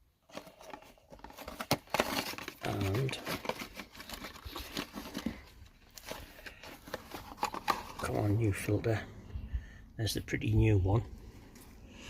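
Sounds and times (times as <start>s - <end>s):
packaging crinkling and rustling: 0.2s - 8.5s.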